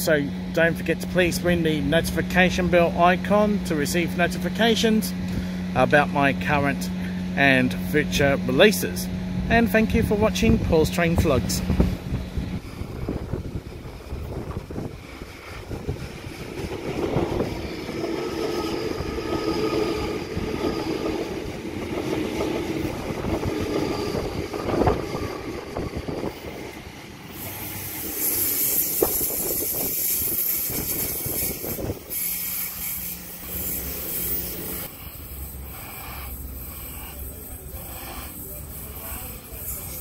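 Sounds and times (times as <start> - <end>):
train passing on rails: 0.0 - 40.0
loud high hiss: 22.8 - 40.0.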